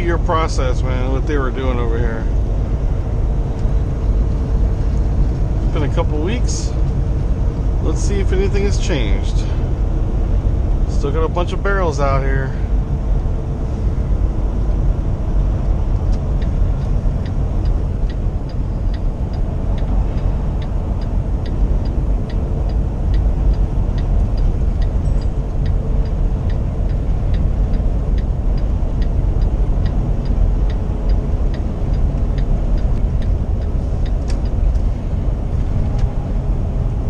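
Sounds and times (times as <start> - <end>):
truck engine and road rumble: 0.0 - 37.0
even ticking: 14.7 - 37.0.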